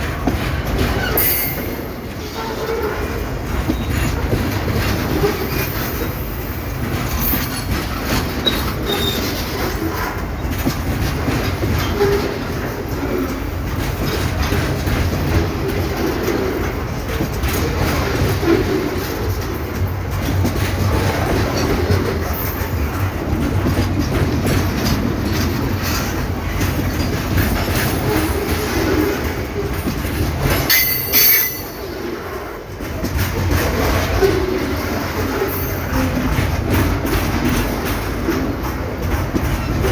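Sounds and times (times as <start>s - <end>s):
train cars rumbling and clattering: 0.0s - 39.9s
high-pitched wheel squeal: 1.1s - 2.5s, 30.7s - 31.8s.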